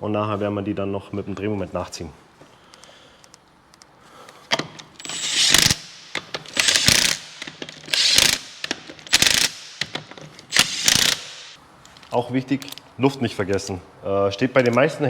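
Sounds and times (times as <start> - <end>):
impact wrench bursts: 4.5 - 11.6.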